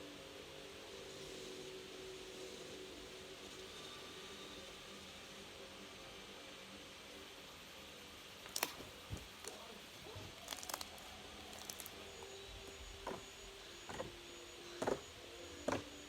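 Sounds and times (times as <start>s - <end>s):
faint steady hum: 0.0s - 16.0s
slime squishing: 8.5s - 12.0s.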